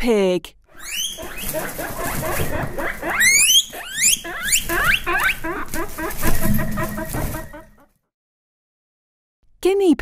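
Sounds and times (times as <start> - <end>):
guinea pig wheeking: 0.7 - 7.9.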